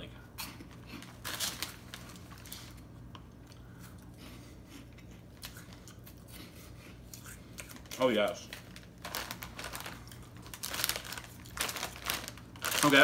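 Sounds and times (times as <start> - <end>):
snack bag rustling: 0.4 - 4.0, 7.6 - 13.0.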